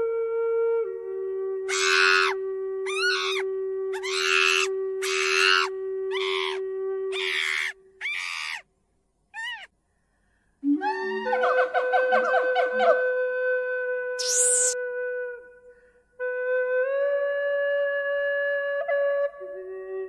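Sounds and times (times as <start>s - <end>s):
animal screeching calls: 1.7s - 3.4s, 4.0s - 8.6s, 9.4s - 9.7s, 14.2s - 14.8s
soft flute-like note: 14.1s - 15.6s.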